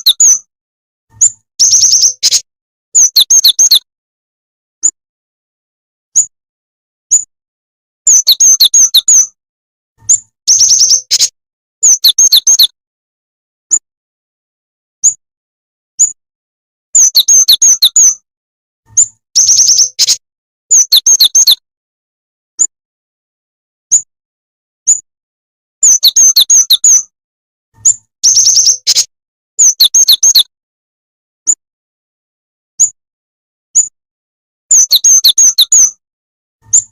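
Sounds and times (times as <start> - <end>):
bird sharp high chirps: 0.0 - 0.5, 1.1 - 3.9, 6.1 - 6.3, 7.1 - 7.3, 8.1 - 9.4, 10.0 - 12.8, 15.0 - 15.2, 16.0 - 16.2, 17.0 - 18.2, 18.9 - 21.6, 23.9 - 24.1, 24.8 - 25.1, 25.8 - 27.1, 27.8 - 30.5, 32.8 - 33.0, 33.7 - 34.0, 34.7 - 36.0, 36.6 - 36.9.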